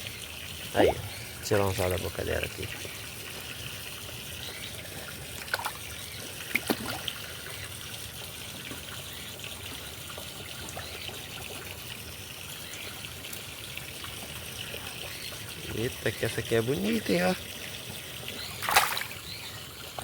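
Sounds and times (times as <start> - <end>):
water trickling: 0.0 - 20.0
short knocks or splashes: 6.5 - 7.1, 18.6 - 19.2.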